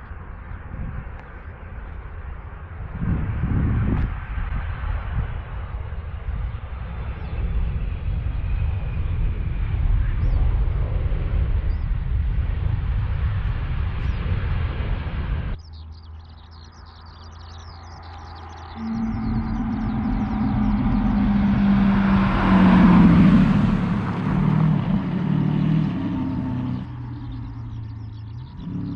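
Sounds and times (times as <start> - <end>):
engine humming low: 0.0 - 28.9
birds chirping: 9.9 - 12.7, 13.3 - 28.9
sports car engine running: 18.4 - 28.9.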